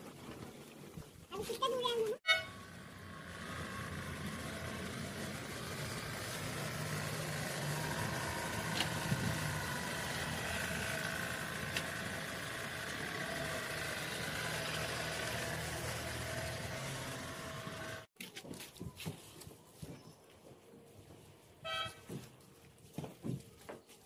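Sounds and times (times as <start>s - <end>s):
car engine humming at low revs: 2.6s - 18.1s.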